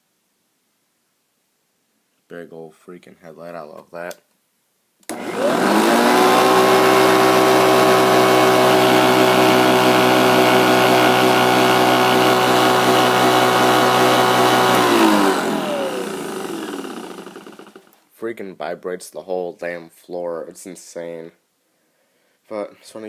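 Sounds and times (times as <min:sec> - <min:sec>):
upright vacuum motor whining: 0:05.1 - 0:18.0.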